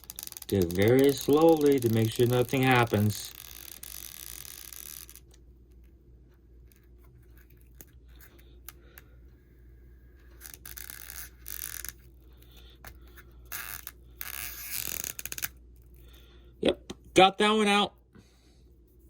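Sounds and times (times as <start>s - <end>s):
adhesive strip scraping and tearing: 0.0s - 5.3s, 10.3s - 12.0s, 13.5s - 15.6s
low steady hum: 0.0s - 19.0s.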